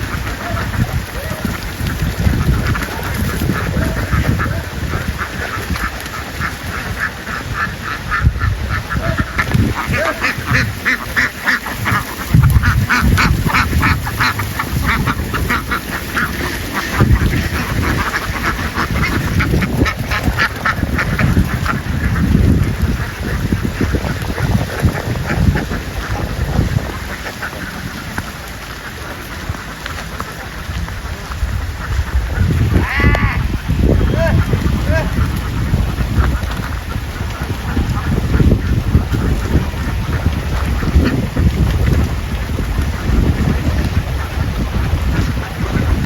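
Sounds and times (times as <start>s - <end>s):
ducks quacking: 0.0s - 46.0s.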